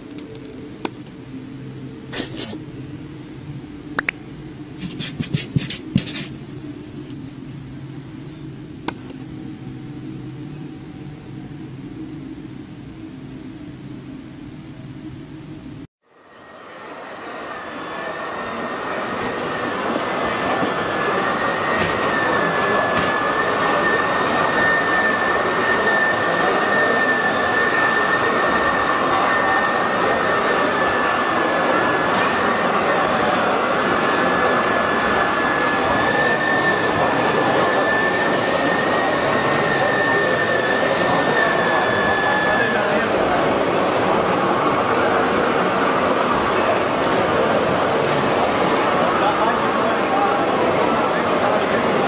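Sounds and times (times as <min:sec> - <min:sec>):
click: 0:00.1 - 0:01.2.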